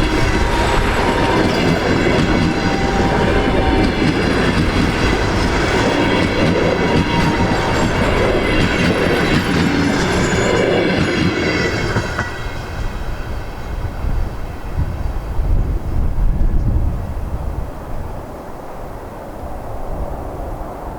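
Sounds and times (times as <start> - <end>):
train wheels clattering over rails: 0.0 - 15.4.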